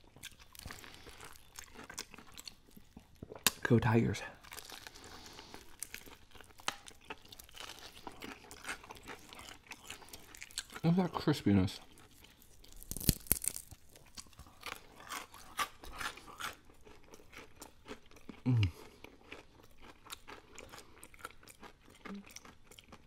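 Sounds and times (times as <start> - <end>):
chewing with crackles: 0.0 - 23.0
crunchy bite into fried chicken: 12.4 - 23.0.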